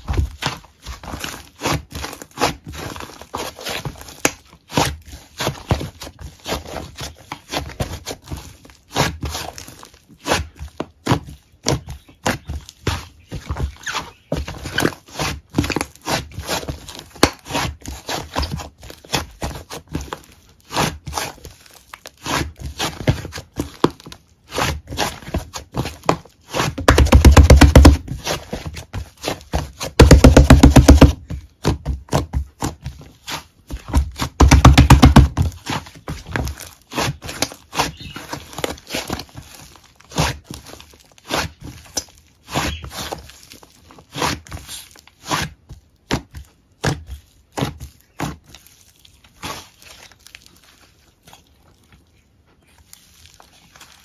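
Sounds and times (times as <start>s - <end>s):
sharp taps clicks and crinkles: 0.0s - 8.8s, 25.3s - 44.0s.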